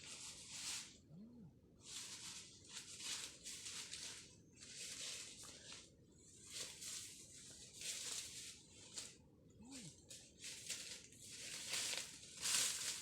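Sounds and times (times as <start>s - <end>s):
dry rustling or scraping: 10.4s - 13.0s.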